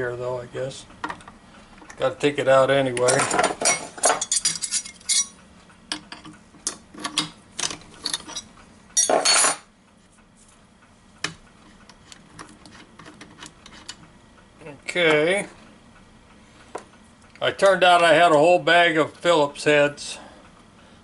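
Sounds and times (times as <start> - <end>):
metal hardware rattling: 3.0 - 5.3
metal tools clinking on workbench: 3.0 - 5.4, 6.7 - 9.7.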